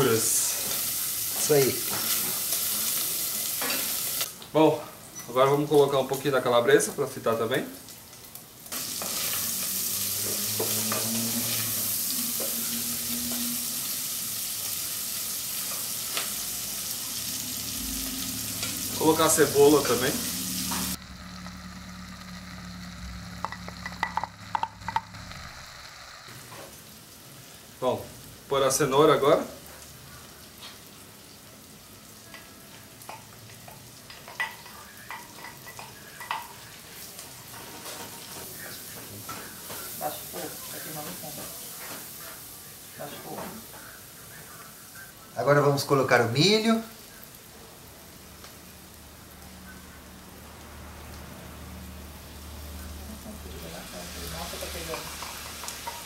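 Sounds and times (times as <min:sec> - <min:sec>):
meat sizzling in a pan: 0:00.0 - 0:04.5, 0:05.1 - 0:56.0
wooden spoon knocking pot: 0:23.4 - 0:25.1.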